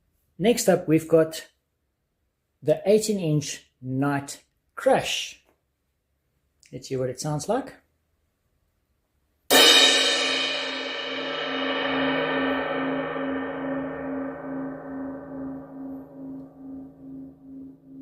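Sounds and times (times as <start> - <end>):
crash cymbal ringing: 9.5 - 18.0.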